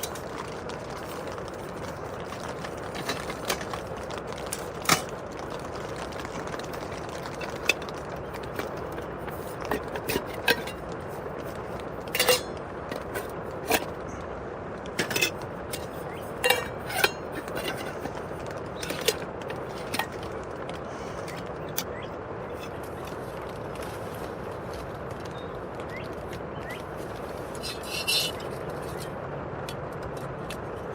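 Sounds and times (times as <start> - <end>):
rain on tent fabric: 0.0 - 30.9
cookware clinking and knocking: 7.4 - 10.8, 12.0 - 14.0, 14.9 - 20.2.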